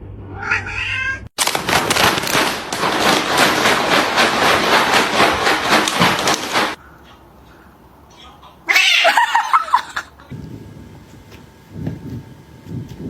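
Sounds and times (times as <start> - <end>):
cat yowling: 0.3 - 1.3, 8.7 - 9.5
loud rough noise: 1.4 - 6.8.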